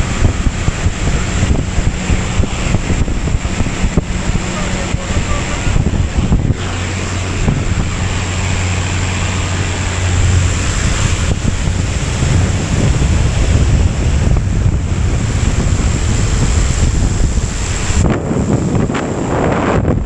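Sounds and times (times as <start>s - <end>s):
low hum: 0.0s - 20.0s
wind buffeting microphone: 0.0s - 20.0s.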